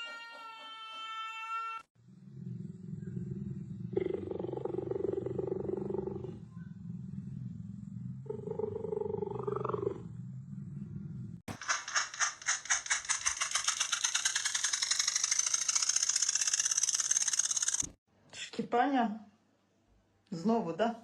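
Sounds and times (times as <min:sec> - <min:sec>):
cat growling: 0:02.1 - 0:11.4.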